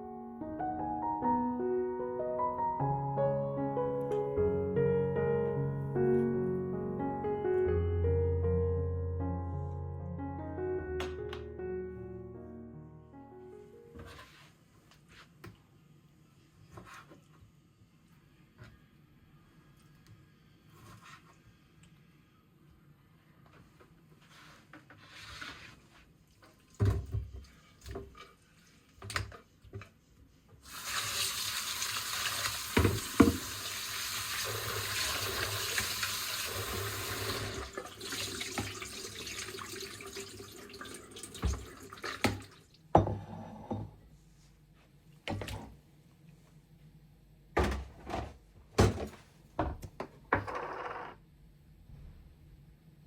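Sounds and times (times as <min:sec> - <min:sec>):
tap water running into sink: 0:30.6 - 0:42.6
knocks and clunks of handling: 0:47.6 - 0:50.8.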